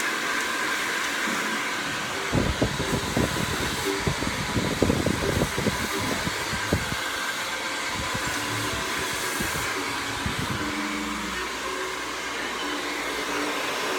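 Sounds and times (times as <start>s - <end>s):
hair dryer blowing: 0.0s - 13.9s.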